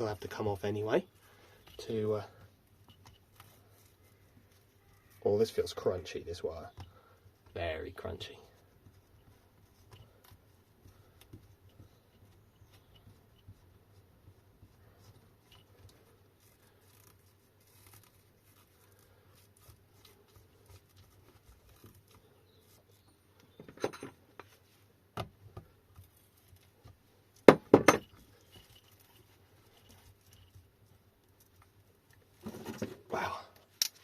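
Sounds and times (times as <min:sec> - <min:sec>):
faint clicks and rustles: 0:00.0 - 0:34.0
sharp knocks: 0:27.5 - 0:28.1.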